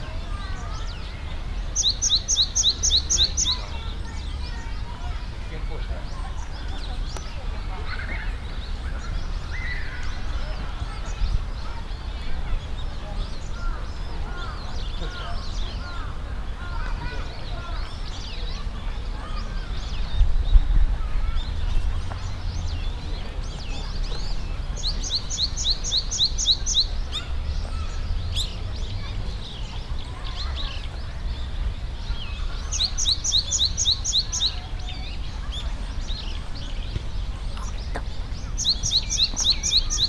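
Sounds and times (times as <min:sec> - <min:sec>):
birds chirping faintly: 0:00.0 - 0:40.0
songbird singing high repeated notes: 0:00.6 - 0:04.6, 0:37.7 - 0:40.0.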